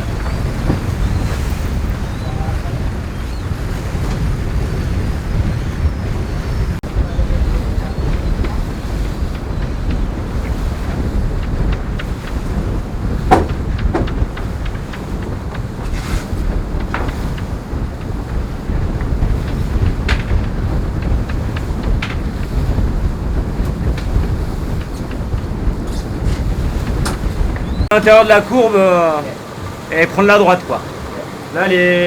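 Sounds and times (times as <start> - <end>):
water rushing along hull: 0.0 - 32.0
wind buffeting microphone: 0.0 - 32.0
sharp knocks: 13.1 - 16.1.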